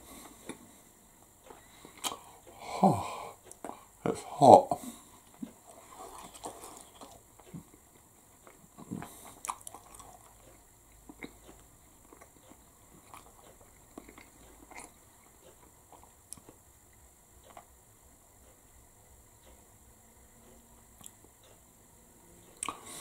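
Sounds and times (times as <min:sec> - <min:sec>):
person chewing: 0:01.4 - 0:02.6, 0:05.2 - 0:17.7, 0:22.5 - 0:23.0.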